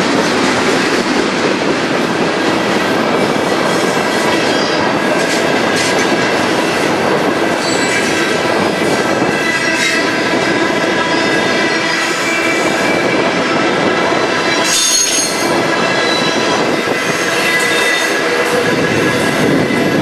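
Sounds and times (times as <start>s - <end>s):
freight train wheels rumbling: 0.0s - 20.0s
high-pitched wheel squeal: 7.6s - 8.2s, 14.5s - 19.9s.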